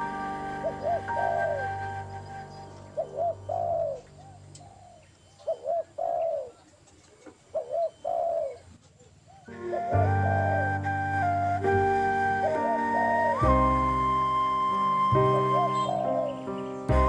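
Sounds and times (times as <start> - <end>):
flute music: 0.0 - 4.2, 9.5 - 17.0
faint background music: 0.0 - 6.5
bird call: 0.0 - 8.7, 9.3 - 17.0.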